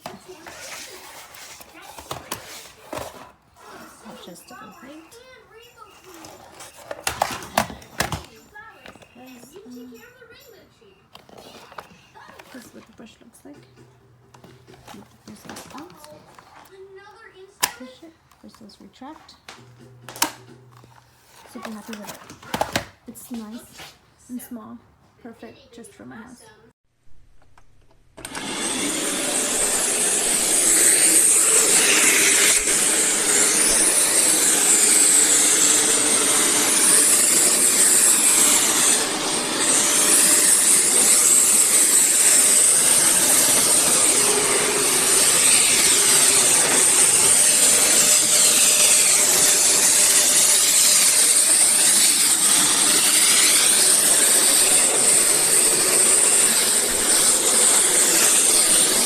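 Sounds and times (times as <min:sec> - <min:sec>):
vacuum cleaner running: 0:00.0 - 0:05.1, 0:06.0 - 0:09.4, 0:28.2 - 0:59.0.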